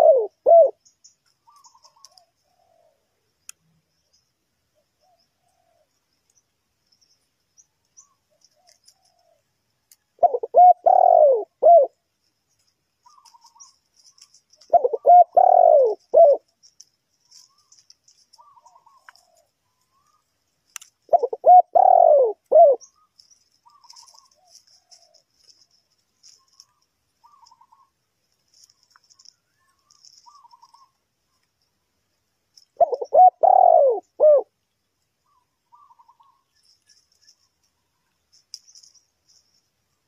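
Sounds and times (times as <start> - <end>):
dove cooing: 0.0 - 0.9, 1.5 - 3.1, 8.4 - 9.5, 10.2 - 12.0, 13.0 - 16.5, 17.3 - 20.2, 21.1 - 27.9, 28.5 - 31.0, 32.8 - 34.5
small birds chirping: 0.0 - 40.0.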